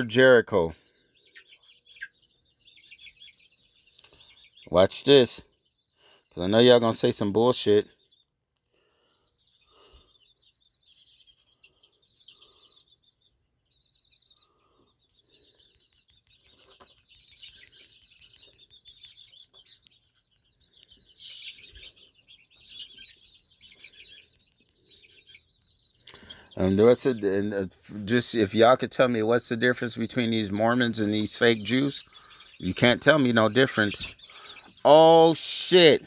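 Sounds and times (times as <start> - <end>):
faint bird calls and chirping: 0.0 - 36.0.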